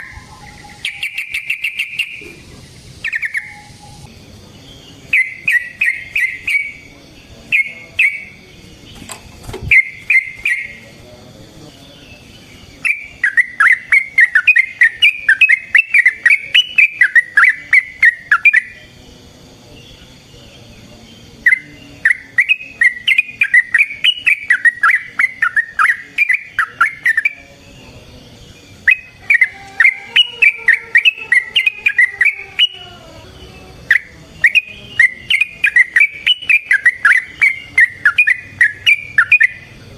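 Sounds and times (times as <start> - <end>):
bulbul bubbling song: 0.0 - 4.1, 5.1 - 6.9, 7.5 - 8.4, 9.7 - 10.8, 12.8 - 18.8, 21.4 - 27.4, 28.8 - 32.8, 33.9 - 39.7.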